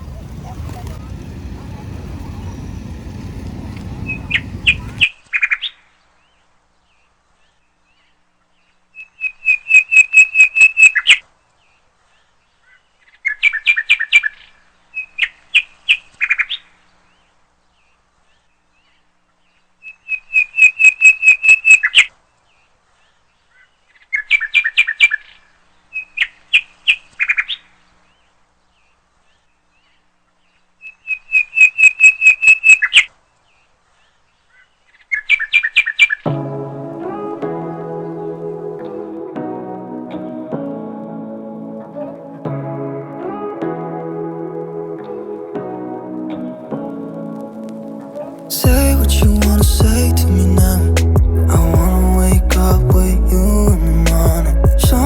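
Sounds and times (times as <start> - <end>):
low background rumble: 0.0 - 5.0, 48.7 - 55.0
songbird chirping: 0.0 - 55.0.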